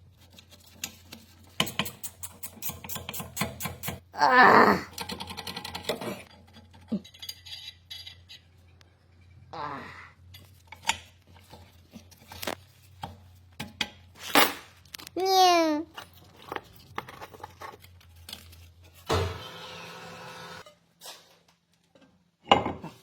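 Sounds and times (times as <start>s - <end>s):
metal tools clinking: 5.0s - 8.6s.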